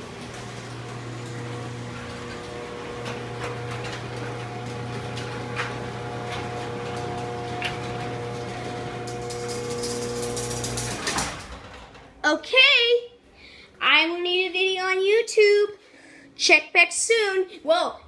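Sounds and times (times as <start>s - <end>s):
garage door opener motor hum: 0.0s - 12.2s.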